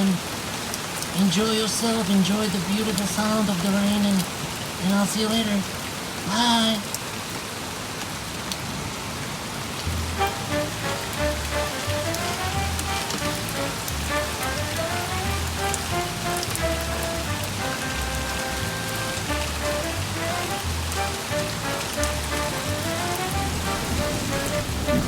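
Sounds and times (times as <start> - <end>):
steady rain falling: 0.0 - 25.0
slow melody over low bass: 9.9 - 25.0.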